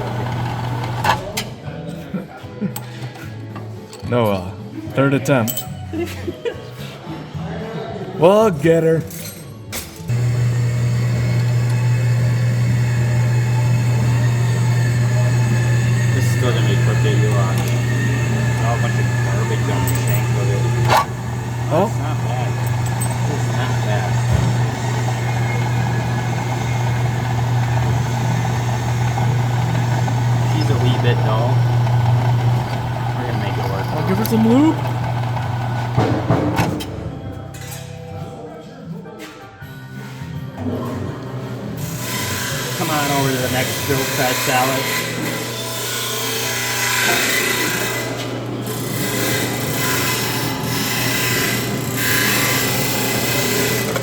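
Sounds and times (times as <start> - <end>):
drill press motor humming: 0.0 - 1.4, 10.1 - 36.4, 42.2 - 54.0.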